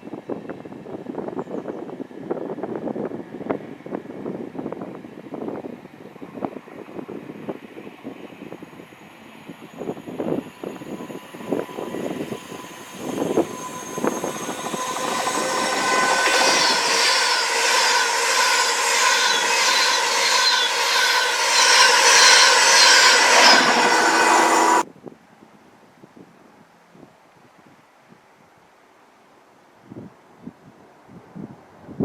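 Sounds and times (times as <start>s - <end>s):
train passing roar: 9.5s - 24.8s
whining tones: 9.8s - 24.8s.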